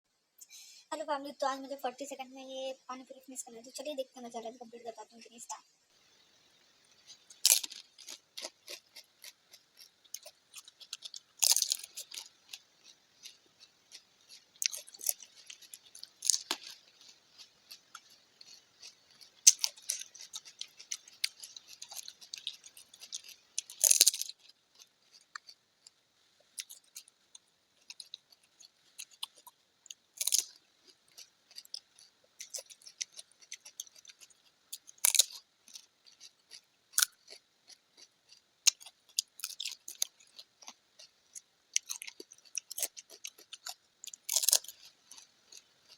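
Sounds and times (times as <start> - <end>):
crackling chewing: 5.0 - 45.9
crisp shells crunching when bitten: 6.8 - 45.9.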